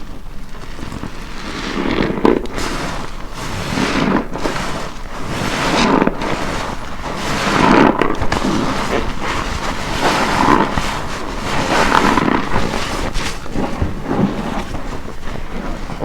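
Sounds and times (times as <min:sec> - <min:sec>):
soapy sponge squelching: 0:00.0 - 0:16.0.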